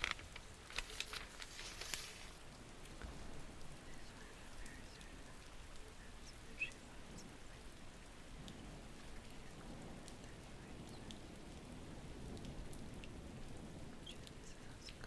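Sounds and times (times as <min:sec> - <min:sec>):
faint steady rain: 0:00.0 - 0:15.0.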